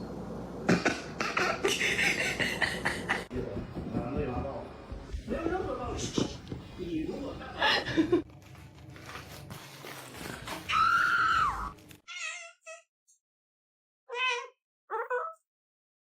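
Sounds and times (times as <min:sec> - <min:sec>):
cat meowing: 0:10.7 - 0:12.9, 0:14.1 - 0:15.4.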